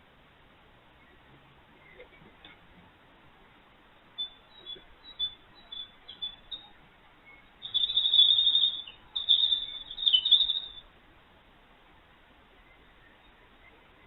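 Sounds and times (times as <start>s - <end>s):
songbird chirping and trilling: 4.0s - 10.9s, 12.5s - 14.0s.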